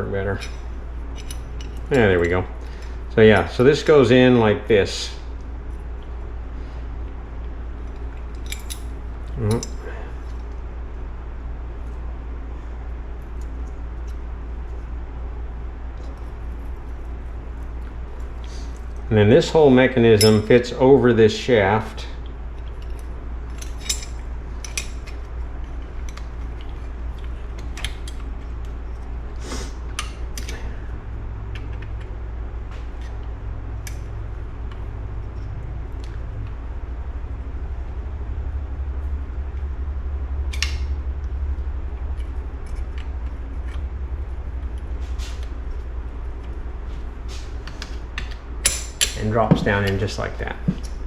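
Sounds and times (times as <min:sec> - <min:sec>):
steady low hum: 0:00.0 - 0:51.0
metallic clicks of engine parts: 0:00.2 - 0:03.6, 0:07.4 - 0:10.6, 0:20.1 - 0:20.7, 0:22.6 - 0:29.1, 0:40.5 - 0:41.0, 0:47.6 - 0:51.0
metal parts clicking: 0:00.3 - 0:02.4, 0:07.9 - 0:10.4, 0:22.6 - 0:25.3.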